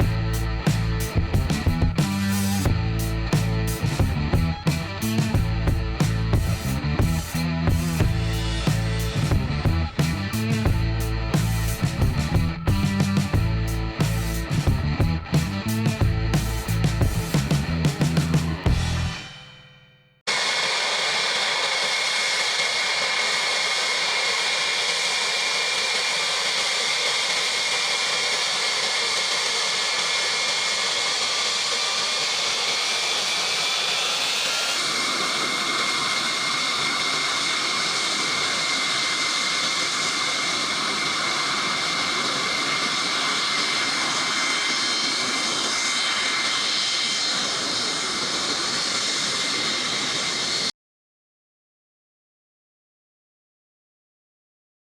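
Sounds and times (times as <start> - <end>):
jet engines whining: 0.0 - 19.6, 20.3 - 50.7.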